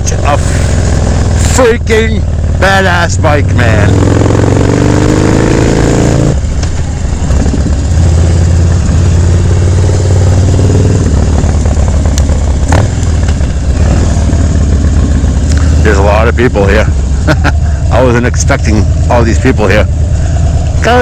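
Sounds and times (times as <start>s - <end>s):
motorcycle engine running loud: 0.0s - 21.0s.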